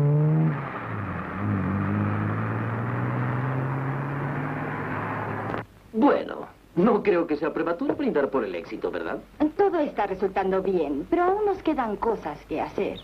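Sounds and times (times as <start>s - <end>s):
car engine running: 0.0s - 5.6s
road noise: 0.0s - 5.7s, 11.2s - 13.0s.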